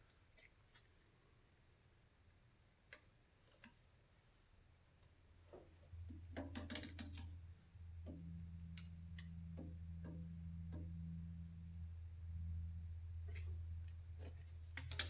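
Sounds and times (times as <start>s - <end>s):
low steady hum: 0.0s - 15.0s
handling clicks and clatter: 13.3s - 15.0s.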